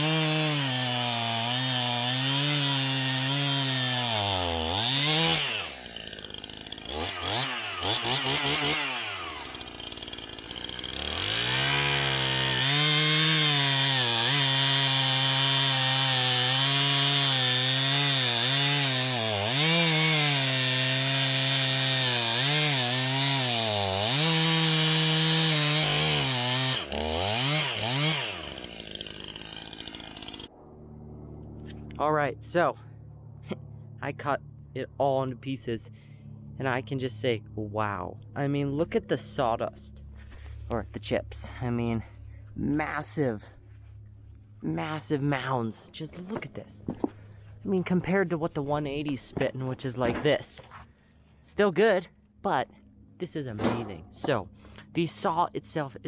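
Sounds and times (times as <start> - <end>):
chainsaw cutting log: 0.0 - 30.6, 46.3 - 48.1, 53.6 - 55.4.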